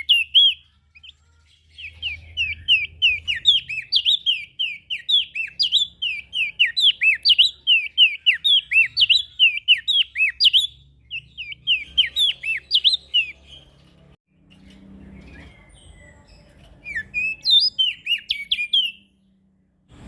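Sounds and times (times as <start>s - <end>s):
songbird chirping: 0.0s - 20.0s.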